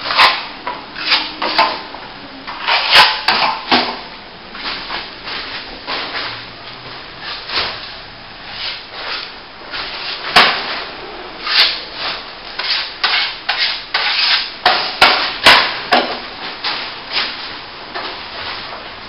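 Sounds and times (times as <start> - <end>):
trowel scraping plaster: 0.0 - 0.4, 2.5 - 3.7, 11.4 - 11.8, 12.6 - 14.8.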